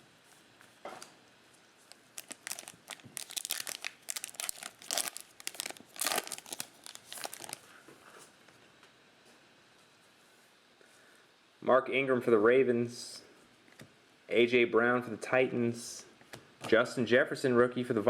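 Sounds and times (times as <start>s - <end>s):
wrapper tearing and crinkling: 1.9s - 7.7s.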